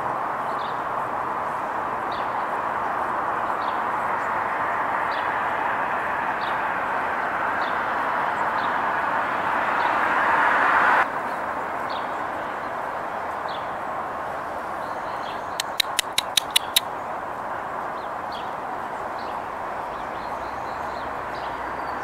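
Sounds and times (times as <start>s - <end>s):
small bird chip notes: 15.6s - 16.8s.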